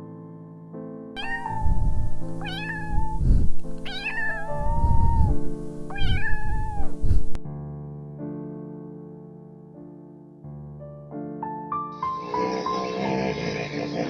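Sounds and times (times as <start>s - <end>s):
piano music: 0.0s - 14.0s
cat meowing: 1.2s - 7.3s.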